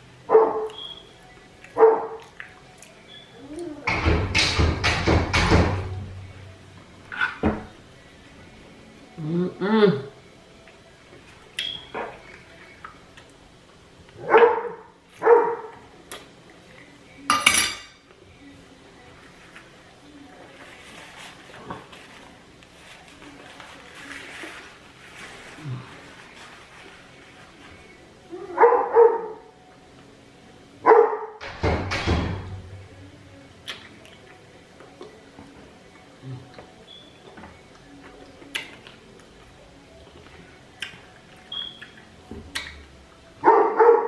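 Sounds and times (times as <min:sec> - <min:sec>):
dog barking: 0:00.3 - 0:00.8, 0:01.8 - 0:02.2, 0:14.2 - 0:15.8, 0:28.5 - 0:29.4, 0:30.8 - 0:31.4, 0:43.4 - 0:44.0.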